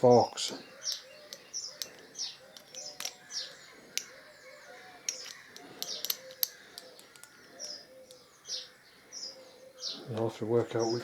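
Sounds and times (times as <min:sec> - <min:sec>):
small birds chirping: 0:00.0 - 0:11.0
metal parts clicking: 0:00.9 - 0:04.1, 0:05.0 - 0:08.2.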